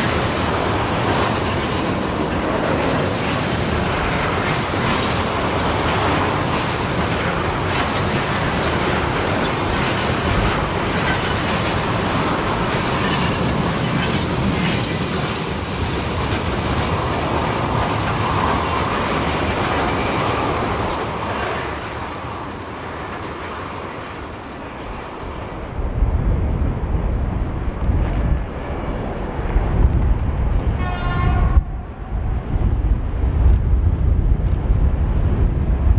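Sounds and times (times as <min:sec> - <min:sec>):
freight train wheels clattering: 0:00.0 - 0:25.6
wind buffeting microphone: 0:00.0 - 0:35.9.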